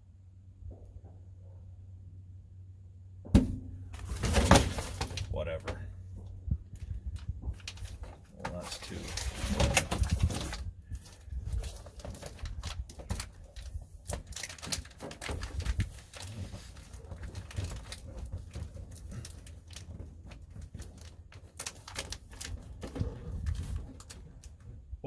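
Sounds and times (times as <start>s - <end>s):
foil mat crinkling and tapping: 6.5s - 24.7s.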